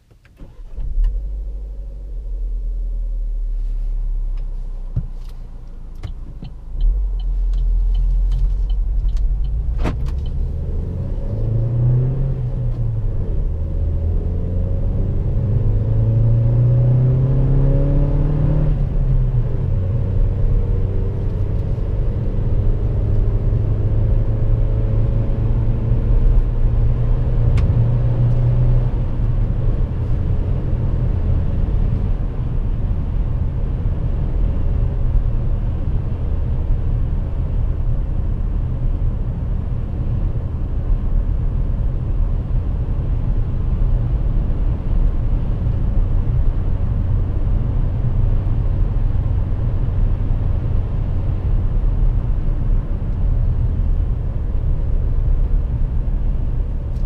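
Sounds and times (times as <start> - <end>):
road rumble: 0.0 - 57.0
car engine accelerating: 0.3 - 57.0
light ticks: 5.2 - 10.4.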